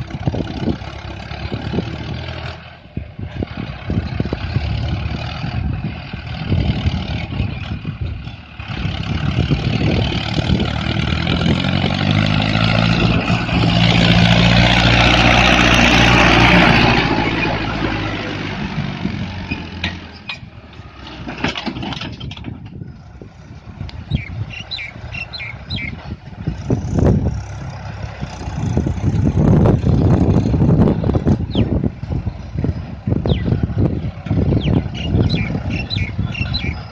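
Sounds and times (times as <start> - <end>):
tractor diesel engine: 0.0 - 36.9
knocks and rattles: 19.5 - 22.8.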